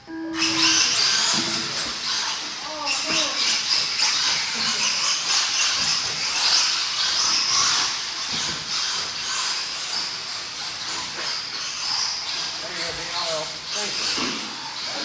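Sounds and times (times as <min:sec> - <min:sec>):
rc cars racing on dirt: 0:00.4 - 0:15.0.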